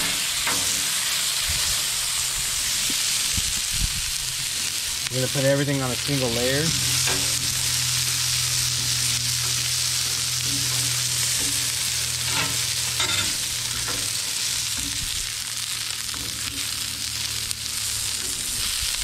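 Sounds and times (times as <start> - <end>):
fries sizzling in hot oil: 0.0 - 19.0
metal spatula scraping griddle: 4.7 - 19.0.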